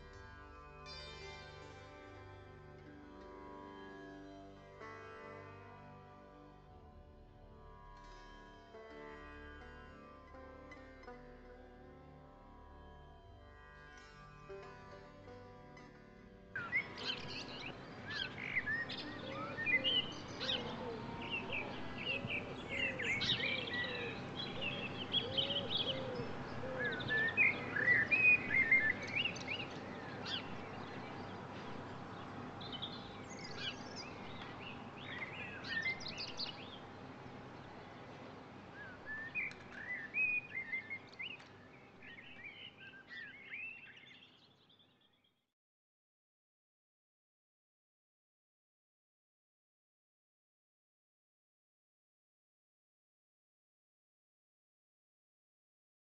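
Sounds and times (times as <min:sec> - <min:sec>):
lower repeated bird notes: 0:16.6 - 0:36.8
birds singing and chirping: 0:16.6 - 0:36.9, 0:38.8 - 0:45.1
outdoor background hiss: 0:16.6 - 0:44.8.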